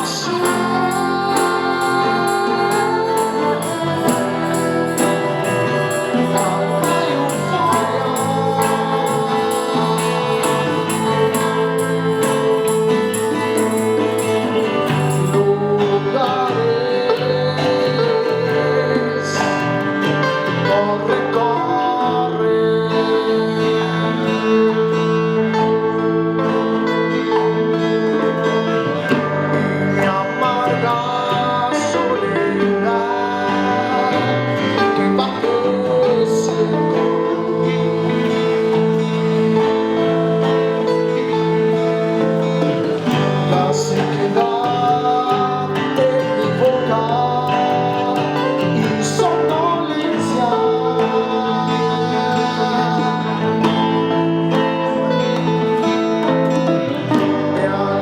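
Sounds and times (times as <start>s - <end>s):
gliding melodic lead line: 0.0s - 16.2s
live band playing: 0.0s - 58.0s.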